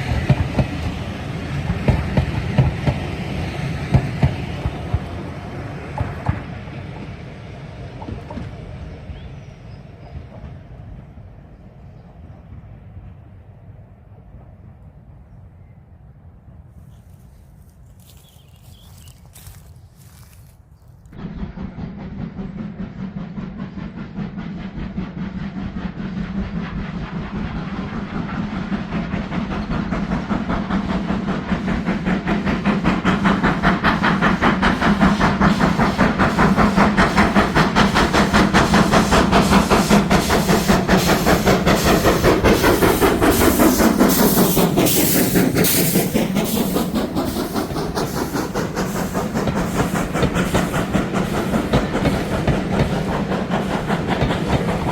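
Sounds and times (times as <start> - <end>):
steam train passing: 0.0 - 20.5, 21.1 - 54.9
steam hiss: 21.3 - 54.9
rapid exhaust beats: 30.0 - 54.9.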